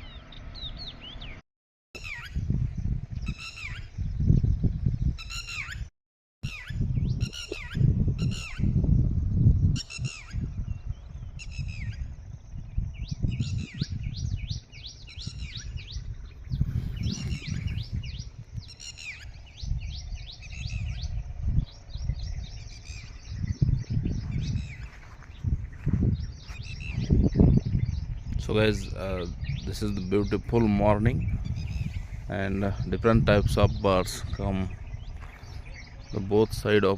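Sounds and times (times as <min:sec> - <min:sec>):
harsh bird calls: 0:00.0 - 0:01.4, 0:02.0 - 0:36.9
low rumble: 0:06.8 - 0:36.9.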